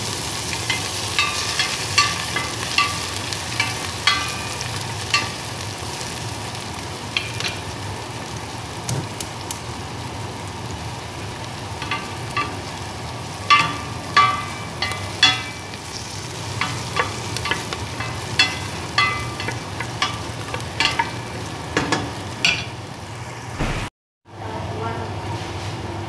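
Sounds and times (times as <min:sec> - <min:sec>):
onion sizzling in hot oil: 0:00.0 - 0:23.6
spatula knocking against pot: 0:13.5 - 0:15.7, 0:16.6 - 0:21.2.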